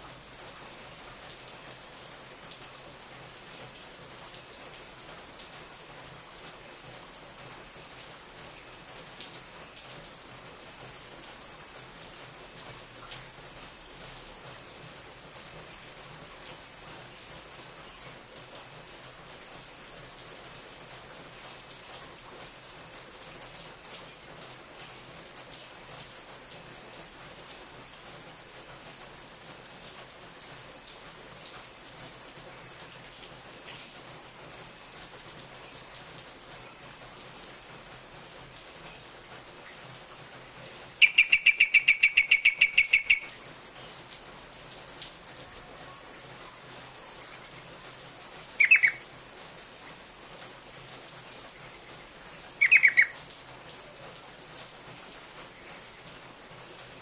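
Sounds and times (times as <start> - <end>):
bulbul chattering calls: 41.0 - 43.4, 48.6 - 49.0, 52.6 - 53.2.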